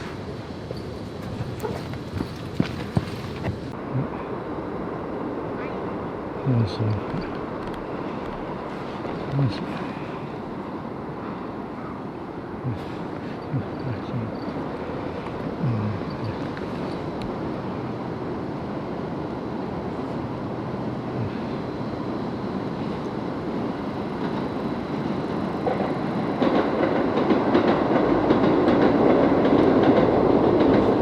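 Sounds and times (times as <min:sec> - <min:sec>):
wheels clattering on track: 0:00.0 - 0:03.8, 0:23.8 - 0:31.0
train rumbling on rails: 0:00.0 - 0:31.0.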